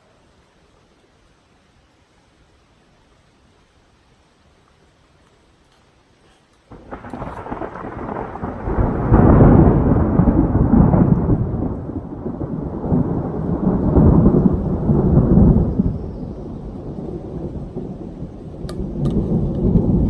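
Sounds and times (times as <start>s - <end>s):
thunder rumbling: 6.7s - 20.0s.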